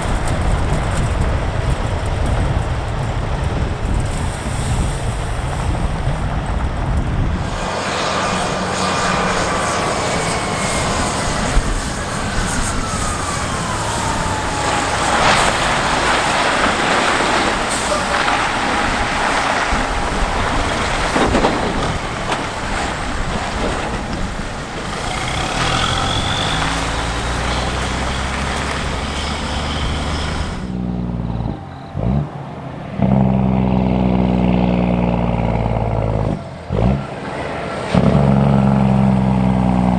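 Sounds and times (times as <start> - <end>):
engine whine falling in pitch: 0.0 - 39.9
heavy trucks driving past: 0.0 - 39.9
air-brake hisses: 24.0 - 30.8.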